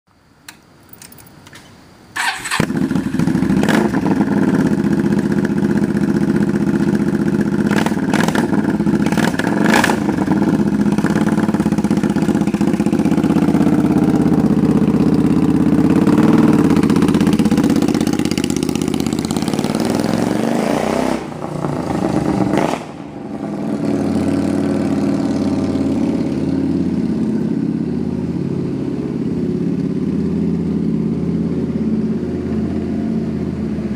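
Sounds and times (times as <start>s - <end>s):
motorcycle engine revving and idling: 2.2s - 33.9s.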